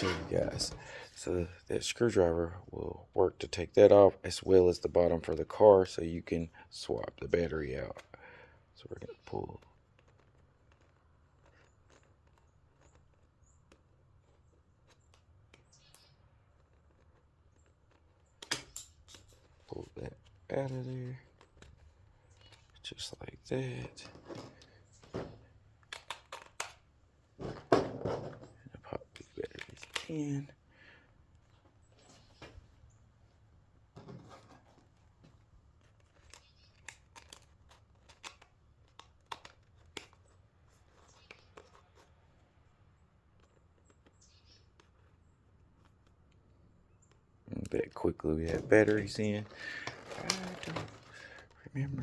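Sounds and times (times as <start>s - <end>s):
plastic clicks and scraping: 9.0s - 30.4s, 34.0s - 42.4s, 43.3s - 52.0s
plastic clicks of batteries inserted: 25.8s - 26.8s.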